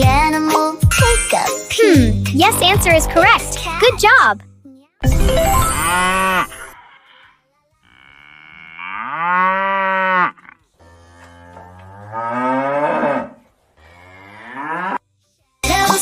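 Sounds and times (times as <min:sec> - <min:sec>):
cow mooing: 0:05.8 - 0:15.0.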